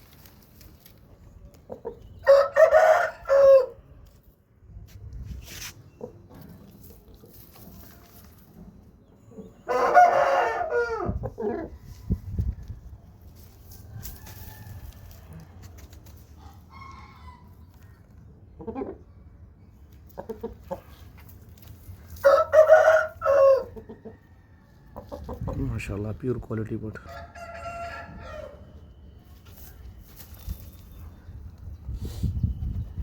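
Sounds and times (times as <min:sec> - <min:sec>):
rooster crowing: 0:02.2 - 0:03.8, 0:09.7 - 0:11.2, 0:22.2 - 0:23.7, 0:27.1 - 0:28.6.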